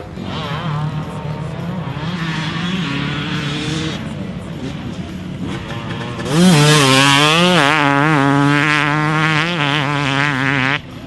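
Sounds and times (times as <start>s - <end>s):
two-stroke engine revving: 0.0s - 11.0s.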